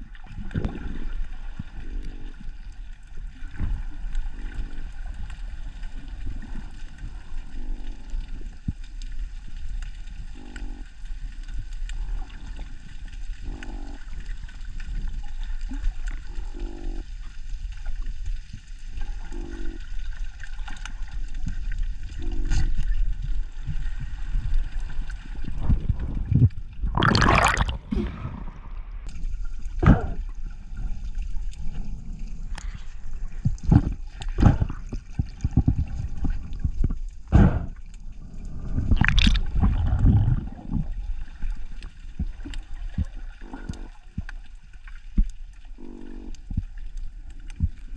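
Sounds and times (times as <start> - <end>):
pulsed croak underwater: 0.0 - 9.4, 10.0 - 18.1, 18.9 - 28.6, 29.6 - 47.9
low water rumble: 0.0 - 47.9
rushing burst of water: 26.9 - 28.5, 38.7 - 40.8.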